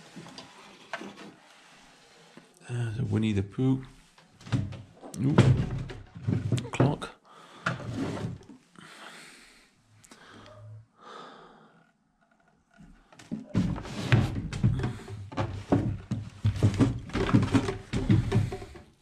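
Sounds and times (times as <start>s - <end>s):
loud knocks and thuds: 4.5s - 7.1s, 13.5s - 19.0s.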